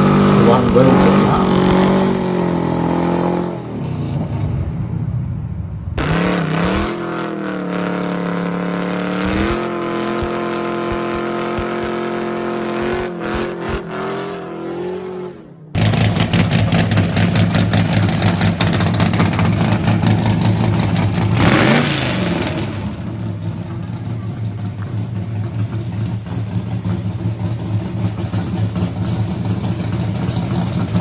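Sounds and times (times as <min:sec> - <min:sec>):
car engine lumpy idle: 0:00.0 - 0:02.7, 0:15.8 - 0:21.8, 0:22.4 - 0:31.0
car engine revving: 0:00.0 - 0:31.0.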